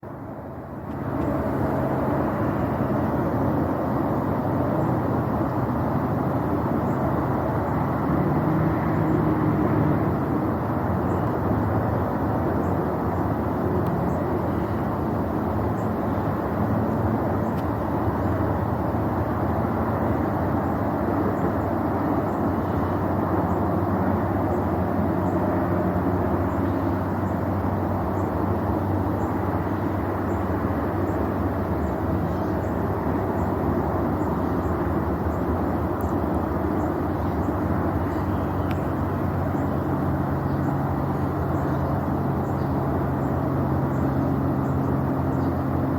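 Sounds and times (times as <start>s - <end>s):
distant rocket roar: 0.7s - 45.9s
faint high ticks: 36.0s - 36.2s, 38.6s - 38.9s.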